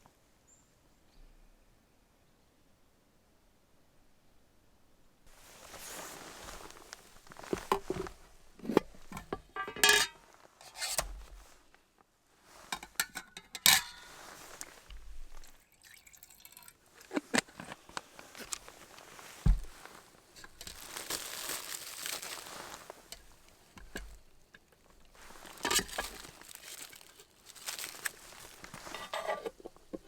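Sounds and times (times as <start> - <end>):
metal cookware clinking: 8.7 - 11.1, 12.7 - 14.5, 25.3 - 27.1, 28.8 - 29.7.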